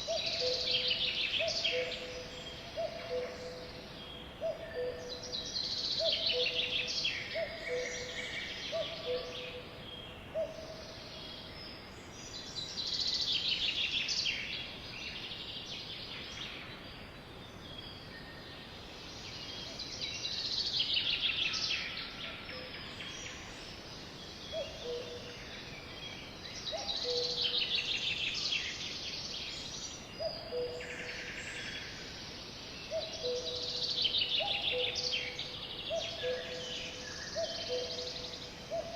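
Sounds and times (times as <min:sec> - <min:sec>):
sparrow trilled song: 0:32.9 - 0:38.9.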